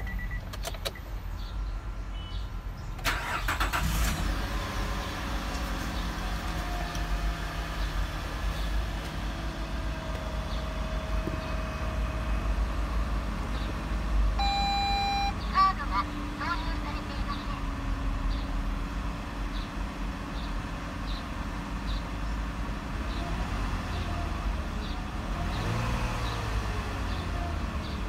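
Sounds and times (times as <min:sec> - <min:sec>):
car engine fast idle: 0:03.0 - 0:08.4
short electronic tone: 0:14.4 - 0:15.3.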